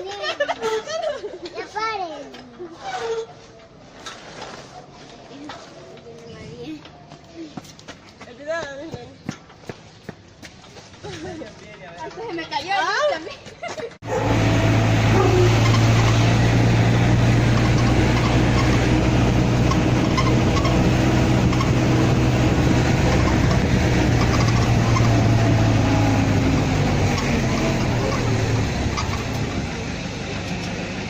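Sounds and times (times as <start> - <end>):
road and wind noise: 0.0 - 31.0
vehicle engine hum: 14.0 - 31.0.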